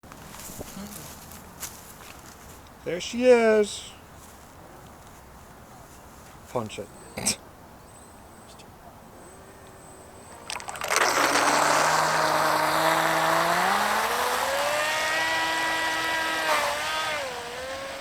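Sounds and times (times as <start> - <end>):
electric motor whine: 10.4 - 18.0
churning water wash: 10.5 - 17.1.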